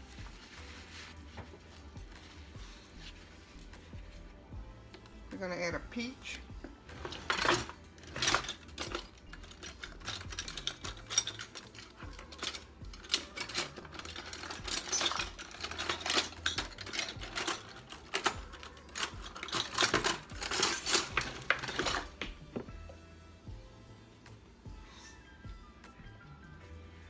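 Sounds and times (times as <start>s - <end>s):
kitchen items clicking and rattling: 6.2s - 22.9s.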